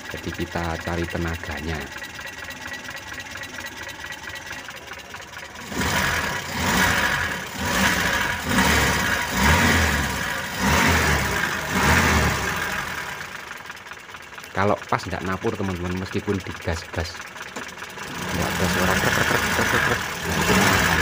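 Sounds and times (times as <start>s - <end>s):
car engine idling: 0.0s - 21.0s
engine revving in short blips: 5.6s - 13.3s, 18.0s - 21.0s.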